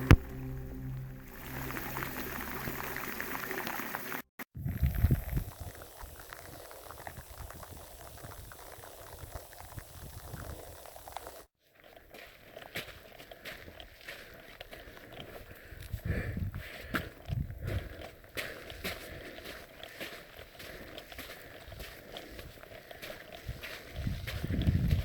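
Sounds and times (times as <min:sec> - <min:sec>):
loud low rumble: 0:00.0 - 0:03.5
rain pattering: 0:00.0 - 0:04.2.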